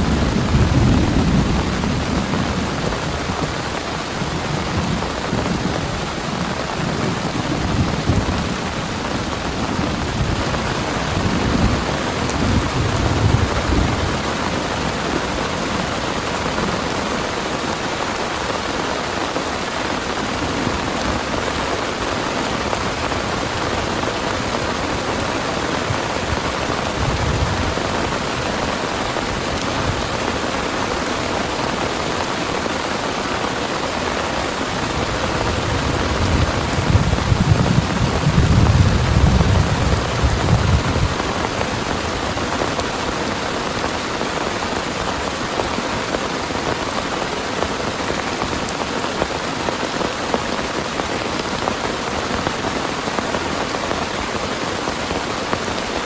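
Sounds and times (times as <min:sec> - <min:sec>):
low thunder rumble: 0:00.0 - 0:03.6, 0:04.2 - 0:15.0, 0:34.7 - 0:42.3
heavy rain pouring: 0:00.0 - 0:56.0.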